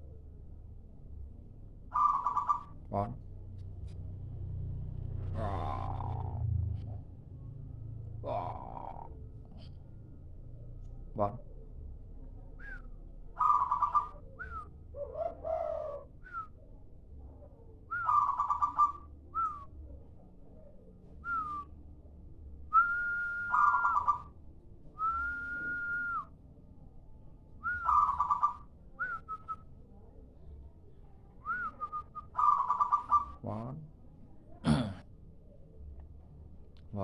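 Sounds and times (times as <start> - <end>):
dove cooing: 1.9 - 2.8, 5.3 - 6.6, 8.2 - 9.2, 13.4 - 16.5, 17.9 - 19.6, 23.2 - 24.3, 27.6 - 29.2, 31.5 - 33.4.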